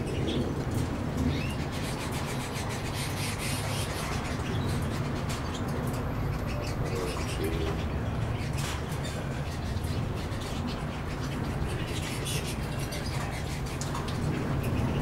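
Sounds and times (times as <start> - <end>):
birds chirping: 0.0 - 15.0
rain ticking and dripping: 0.0 - 15.0.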